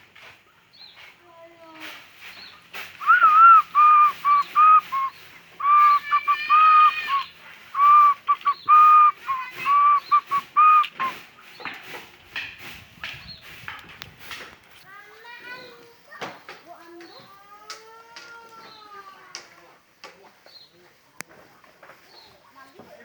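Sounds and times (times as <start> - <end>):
short whistled notes: 3.0 - 11.2.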